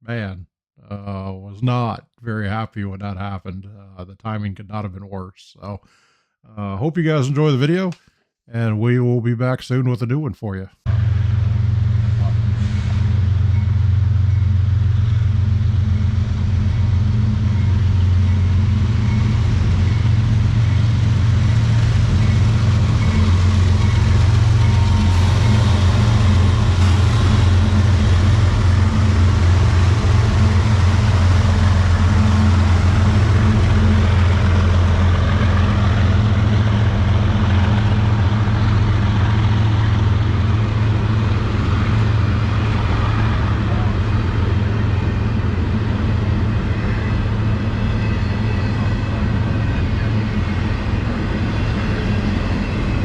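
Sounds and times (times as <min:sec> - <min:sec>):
freight train rumbling past: 0:10.9 - 0:53.0.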